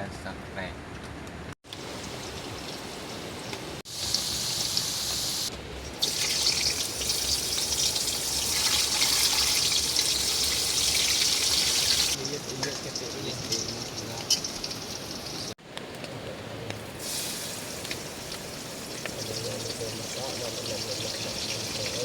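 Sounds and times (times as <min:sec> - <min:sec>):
water running and splashing: 0:06.0 - 0:15.6.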